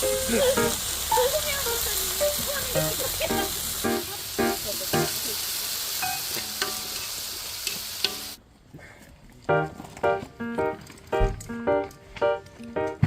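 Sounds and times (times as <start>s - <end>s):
food sizzling on a grill: 0.0s - 8.4s.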